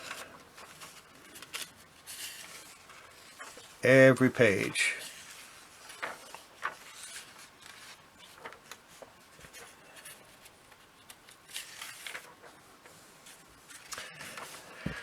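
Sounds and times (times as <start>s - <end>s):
light clicks of pages turned: 0.0s - 3.7s, 5.1s - 15.0s
paper pages rustling: 0.0s - 3.8s, 5.0s - 15.0s.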